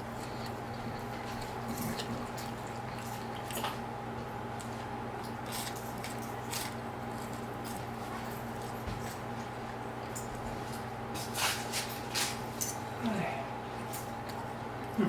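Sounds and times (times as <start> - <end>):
person chewing: 0.0 - 3.9, 4.6 - 7.8
steady low hum: 0.0 - 15.0.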